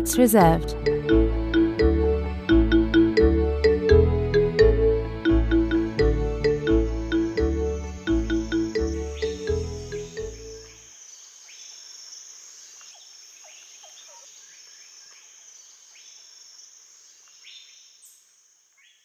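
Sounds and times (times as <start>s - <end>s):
music cue: 0.0s - 10.7s
insects buzzing: 5.7s - 19.0s
lower falling bird calls: 8.1s - 16.5s.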